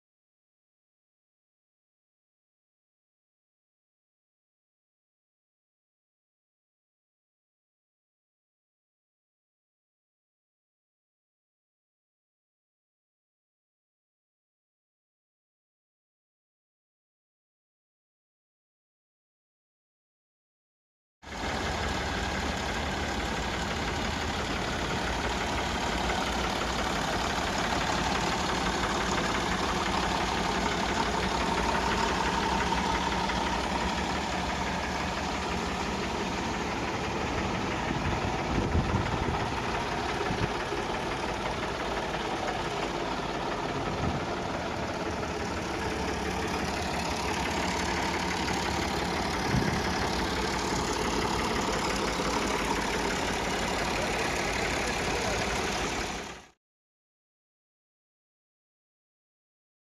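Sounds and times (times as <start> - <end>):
tractor diesel engine idling: 21.3 - 56.6.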